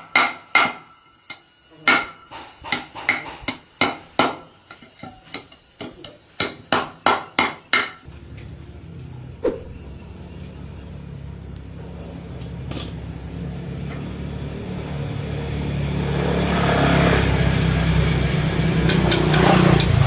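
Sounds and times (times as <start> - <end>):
engine running: 8.1 - 20.0.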